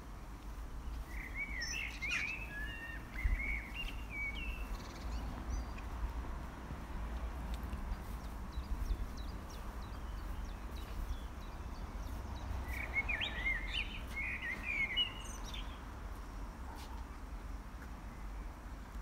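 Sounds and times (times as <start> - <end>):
steady low rumble: 0.0 - 19.0
songbird warbling: 1.1 - 5.0, 12.6 - 15.7.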